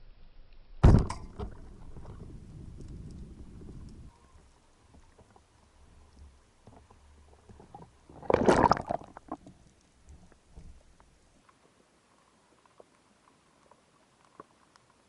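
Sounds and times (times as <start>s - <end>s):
low underwater rumble: 0.8s - 11.2s
dense crackling clicks: 0.8s - 15.0s
underwater clicks: 0.9s - 11.6s.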